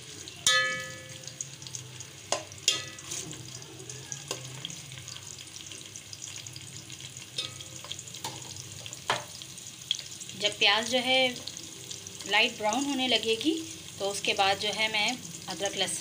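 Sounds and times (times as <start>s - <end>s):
onions sizzling in hot fat: 0.0s - 16.0s
metal spoon scraping and clinking pot: 0.4s - 1.2s, 2.3s - 3.4s, 7.4s - 8.5s.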